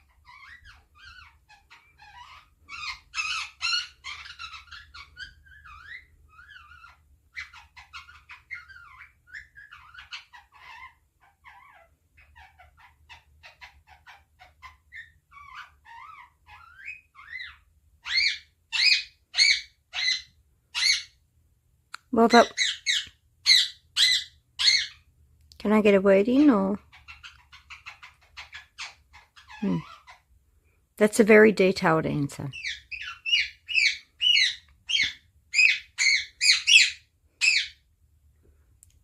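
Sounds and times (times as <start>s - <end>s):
parrot chattering and chirping: 0.0s - 21.2s, 21.9s - 30.4s, 31.5s - 37.9s
parrot squawking loudly: 0.2s - 21.2s, 22.4s - 25.0s, 26.8s - 30.3s, 32.5s - 37.8s.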